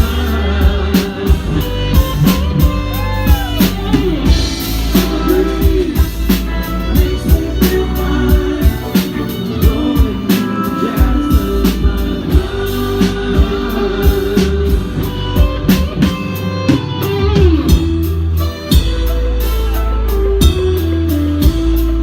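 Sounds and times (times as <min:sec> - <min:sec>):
bass guitar: 0:00.0 - 0:22.0
drum kit beat: 0:00.0 - 0:22.0
electric guitar lines: 0:00.0 - 0:22.0
live rock band playing: 0:00.0 - 0:22.0.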